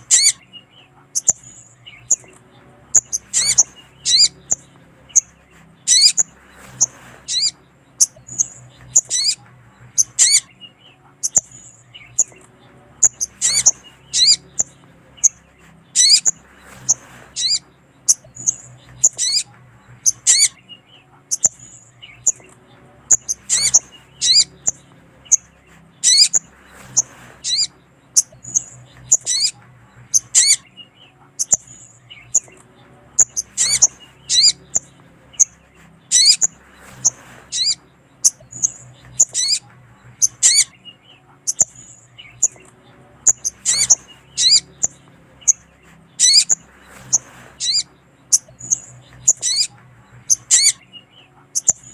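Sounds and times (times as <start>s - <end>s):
wavering zigzag bird calls: 0.0s - 51.9s
high bird chips: 3.0s - 9.4s, 13.0s - 20.6s.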